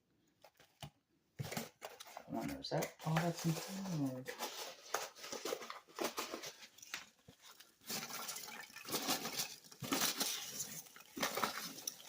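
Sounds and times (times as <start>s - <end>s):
hands rummaging through packing peanuts: 3.1s - 12.0s.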